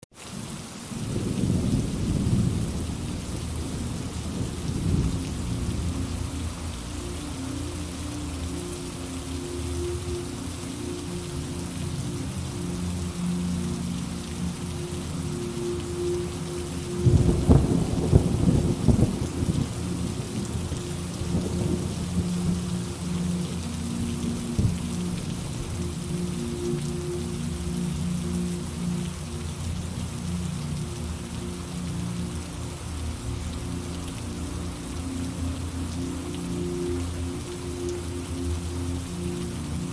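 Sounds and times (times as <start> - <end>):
rain hissing: 0.1 - 39.9
low rumble of thunder: 0.4 - 6.6, 17.0 - 23.2, 24.1 - 26.4.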